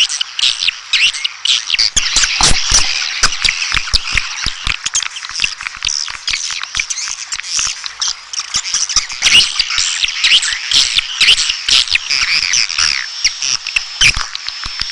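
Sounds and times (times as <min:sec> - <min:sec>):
swiftlets chirping and clicking: 0:01.8 - 0:07.1.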